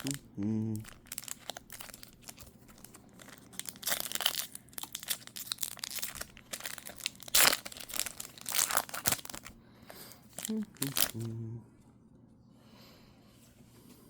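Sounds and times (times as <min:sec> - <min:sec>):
foil pack tearing and crinkling: 0:00.8 - 0:09.6, 0:10.2 - 0:11.3.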